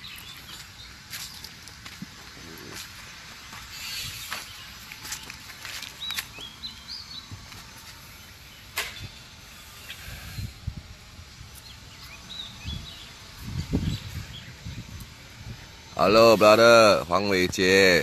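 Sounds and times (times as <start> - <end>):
small bird chirping: 2.3 - 7.5, 11.5 - 15.9.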